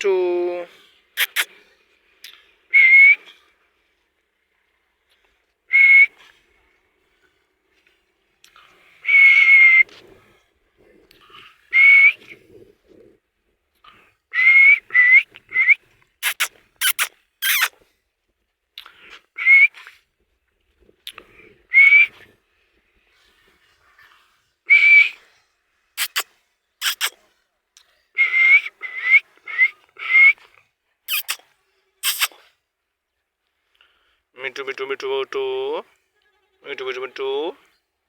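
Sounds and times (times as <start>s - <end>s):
parrot squawking: 1.2s - 1.5s, 16.2s - 17.7s, 26.0s - 26.2s, 26.8s - 27.1s, 31.1s - 31.4s, 32.0s - 32.3s
parrot whistling: 1.2s - 1.5s, 14.5s - 17.7s, 26.0s - 26.2s, 26.8s - 27.1s, 31.1s - 31.4s, 32.0s - 32.3s.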